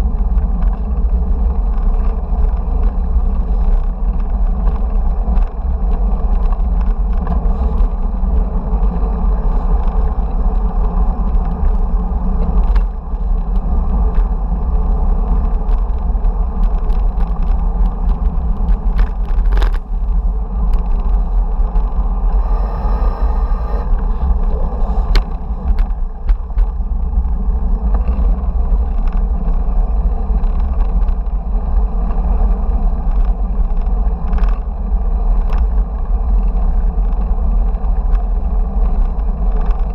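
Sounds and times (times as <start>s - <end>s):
bicycle clicks and rattles: 0.0s - 22.6s, 23.8s - 39.9s
road rumble: 0.0s - 39.9s
wind noise on microphone: 0.0s - 39.9s
high-pitched whine: 20.3s - 28.5s.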